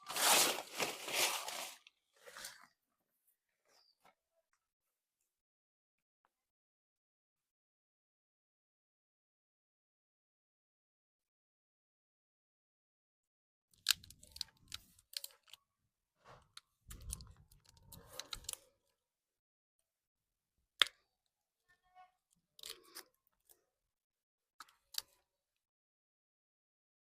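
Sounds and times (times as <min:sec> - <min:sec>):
rustling handling noise: 0:00.0 - 0:02.6.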